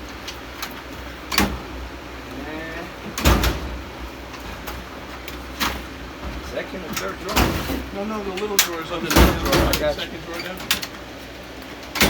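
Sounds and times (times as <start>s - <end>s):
metal drawers opening and shutting: 0.0s - 1.8s, 2.7s - 11.1s, 11.7s - 12.0s
metal drawer clunk: 1.3s - 1.8s, 3.0s - 11.0s.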